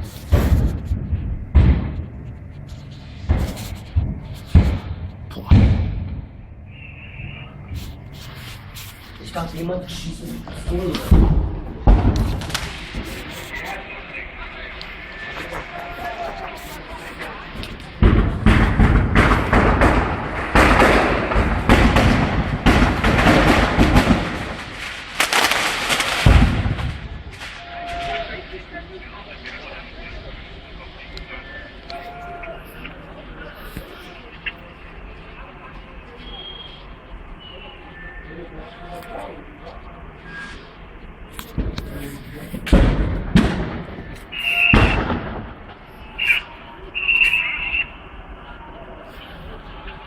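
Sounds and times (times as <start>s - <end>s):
loud bangs with low rumble: 0.0s - 28.7s, 40.9s - 46.6s
continuous rushing noise: 0.0s - 50.0s.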